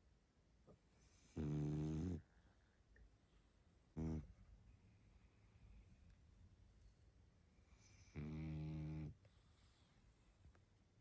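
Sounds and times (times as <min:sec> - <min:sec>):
dog snoring: 0:01.2 - 0:02.2, 0:03.9 - 0:04.4, 0:07.8 - 0:09.2.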